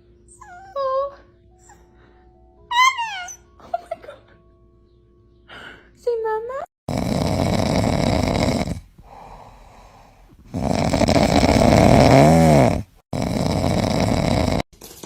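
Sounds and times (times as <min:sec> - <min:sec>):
dog whining: 0:00.2 - 0:01.9, 0:02.7 - 0:03.5
dog making raspy snoring sounds: 0:06.9 - 0:09.2, 0:10.4 - 0:14.7.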